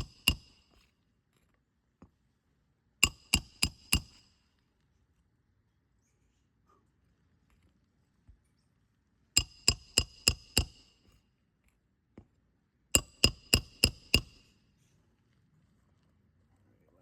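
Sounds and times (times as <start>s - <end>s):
hammer striking metal: 0.0s - 0.6s, 3.0s - 4.3s, 9.4s - 11.0s, 13.0s - 14.5s.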